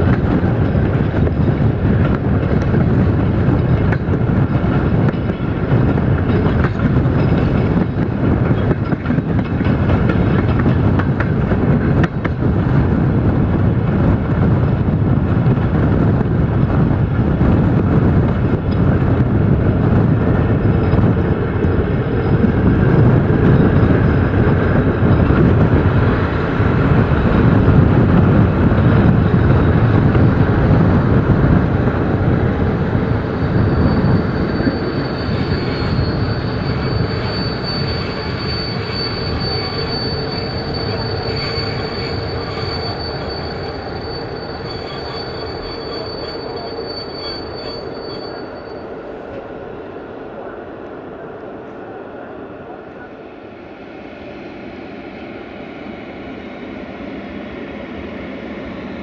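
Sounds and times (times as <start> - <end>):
train wheels rumbling on rails: 0.0 - 59.0
high thin squeal: 33.4 - 49.0.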